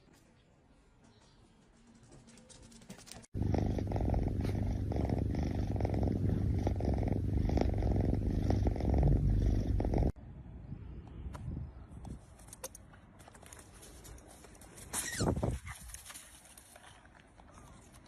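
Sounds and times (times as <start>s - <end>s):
cat purring: 3.3s - 10.2s.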